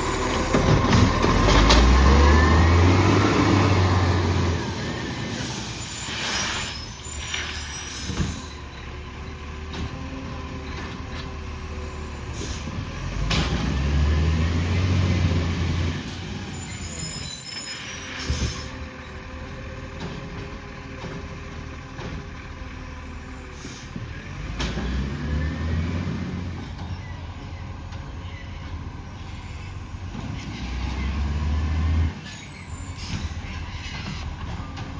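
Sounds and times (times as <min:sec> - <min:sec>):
garbage truck engine running: 0:00.0 - 0:06.0, 0:07.0 - 0:17.1, 0:18.7 - 0:34.9
air brakes hissing: 0:04.0 - 0:08.8, 0:11.8 - 0:12.9, 0:16.0 - 0:19.1, 0:23.0 - 0:24.6, 0:32.2 - 0:34.6.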